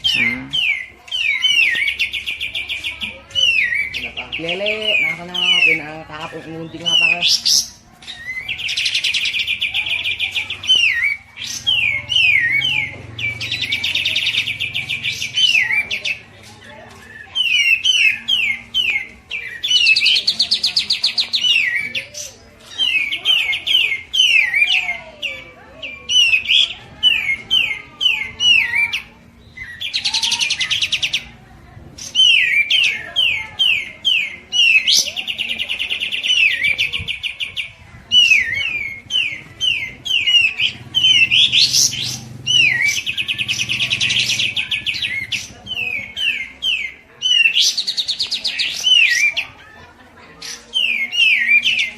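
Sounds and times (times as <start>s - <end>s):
bird rapid trill: 0.0s - 16.3s, 32.0s - 49.6s
songbird chirps: 0.0s - 51.9s.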